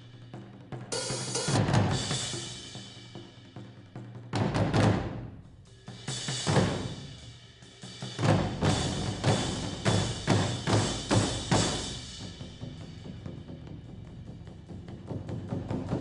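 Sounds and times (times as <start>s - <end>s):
drums struck hard: 0.0s - 16.0s.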